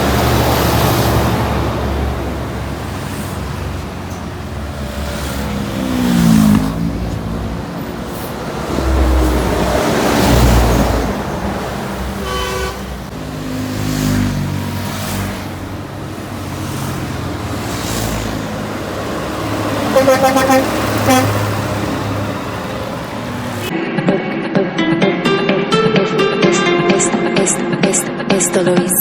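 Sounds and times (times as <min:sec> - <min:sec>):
trucks passing on highway: 0:00.0 - 0:23.7
truck horn blasts: 0:08.4 - 0:13.1, 0:19.4 - 0:23.0.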